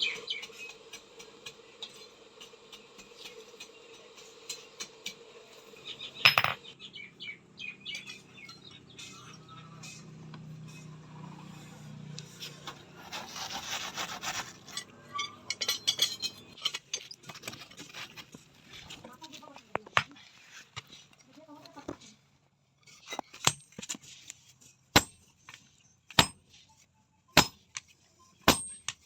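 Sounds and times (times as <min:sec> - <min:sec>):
metal pieces clinking and scraping: 0:06.2 - 0:06.6, 0:14.3 - 0:18.8.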